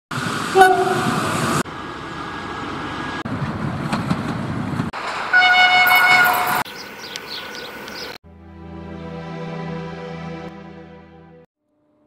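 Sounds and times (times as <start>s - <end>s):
train running: 0.1s - 6.7s
brief train horn toot: 0.5s - 1.2s, 5.3s - 6.6s
multi-tone train horn: 0.5s - 1.3s, 5.3s - 6.6s.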